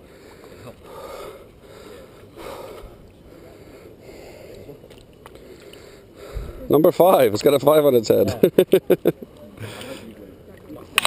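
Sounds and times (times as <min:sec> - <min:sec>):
person breathing heavily: 0:00.0 - 0:04.8, 0:05.4 - 0:06.7.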